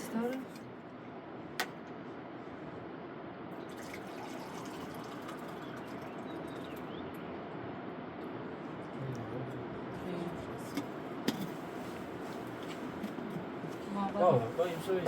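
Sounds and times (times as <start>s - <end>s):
liquid trickling: 3.6s - 6.9s.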